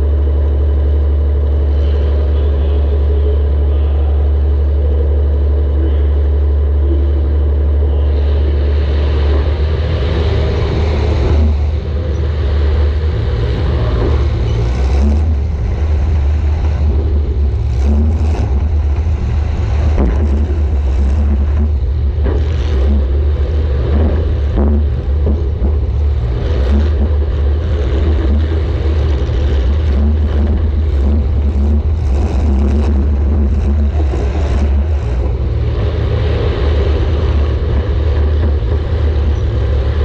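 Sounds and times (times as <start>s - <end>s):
car engine running hard: 0.0s - 40.0s.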